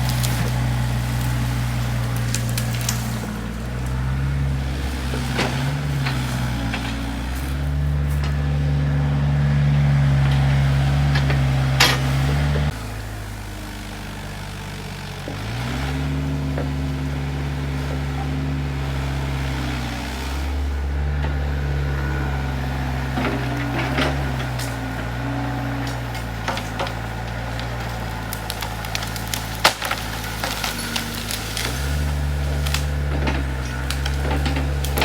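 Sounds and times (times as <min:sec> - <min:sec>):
wood cracking and snapping: 0:00.0 - 0:13.6, 0:22.9 - 0:35.0
excavator diesel engine running: 0:00.0 - 0:35.0.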